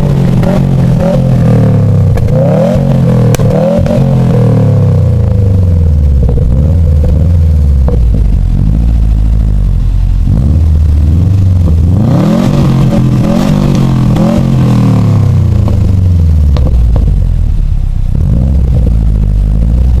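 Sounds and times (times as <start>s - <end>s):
car engine revving and idling: 0.0s - 20.0s.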